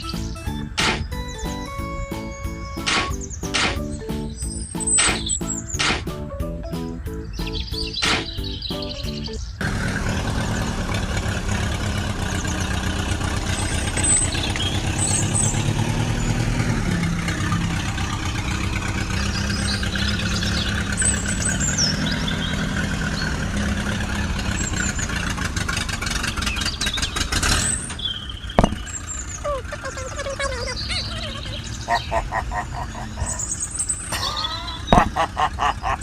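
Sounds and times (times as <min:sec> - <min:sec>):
engine idling: 0:00.0 - 0:36.0
short bird chirps: 0:02.3 - 0:06.0.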